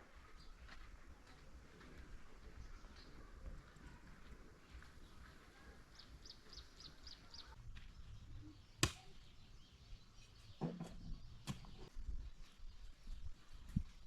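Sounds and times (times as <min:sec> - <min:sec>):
bird chirping: 0:04.7 - 0:14.0.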